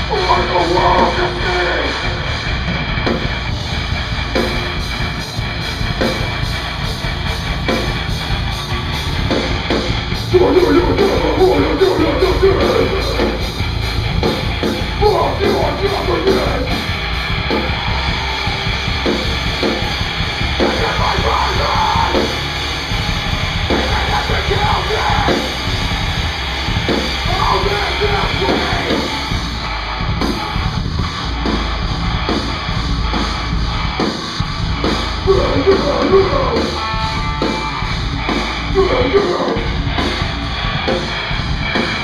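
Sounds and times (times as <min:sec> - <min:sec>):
yelled vocals: 0:00.0 - 0:02.7, 0:09.9 - 0:30.1, 0:35.2 - 0:41.1
drum kit: 0:00.0 - 0:42.0
live rock band playing: 0:00.0 - 0:42.0.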